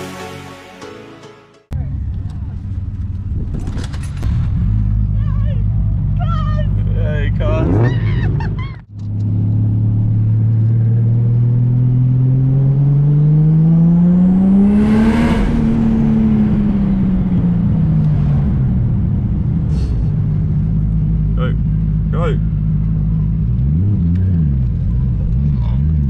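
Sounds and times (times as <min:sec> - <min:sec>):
car accelerating and passing: 0:09.0 - 0:19.7.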